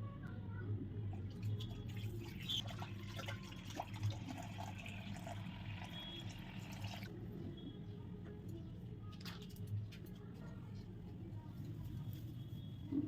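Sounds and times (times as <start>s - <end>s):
water trickling and dripping: 1.2s - 7.1s.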